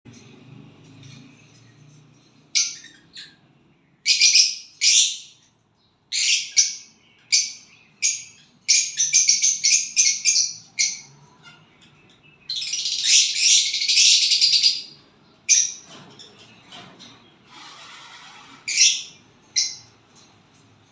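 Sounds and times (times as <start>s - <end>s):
small bird chirping and singing: 2.4s - 15.9s, 18.6s - 20.0s.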